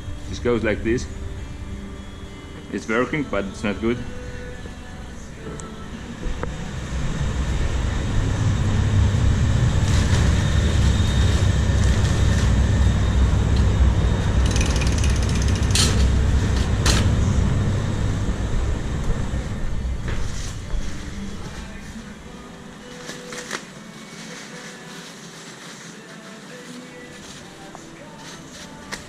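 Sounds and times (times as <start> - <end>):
machine rumbling: 0.0 - 22.6
rapid clicking: 14.4 - 16.0.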